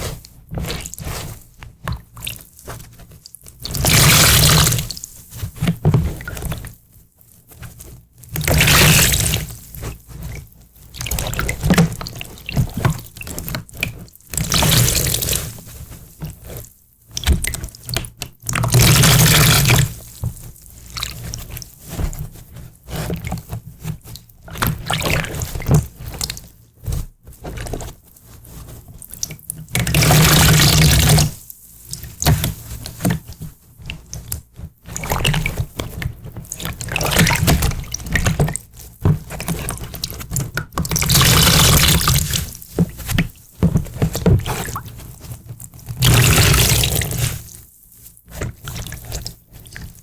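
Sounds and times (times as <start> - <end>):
water dripping and splashing: 46.0 - 47.2
water pouring: 46.0 - 47.3.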